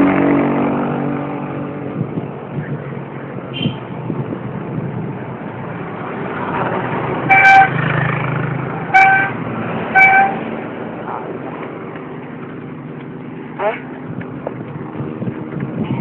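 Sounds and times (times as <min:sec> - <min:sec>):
vehicle horn honking: 0:03.5 - 0:03.8, 0:07.3 - 0:07.8, 0:08.9 - 0:10.4.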